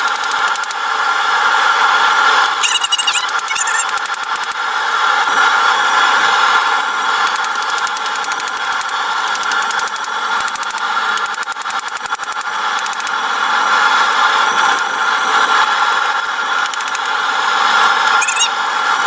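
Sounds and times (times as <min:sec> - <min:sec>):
forge rushing with whistling tone: 0:02.6 - 0:04.0, 0:18.1 - 0:18.6.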